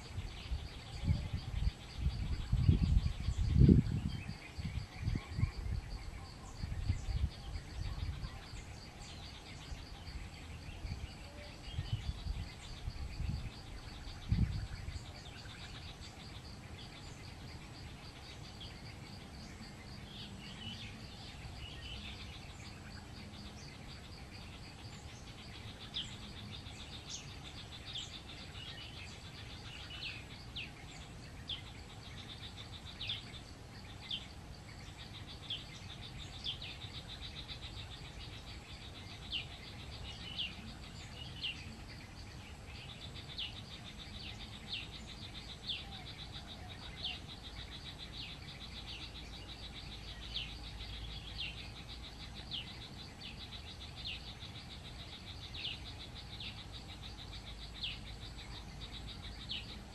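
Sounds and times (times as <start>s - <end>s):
insect trill: 0.0s - 59.9s
small bird chirping: 0.0s - 59.9s.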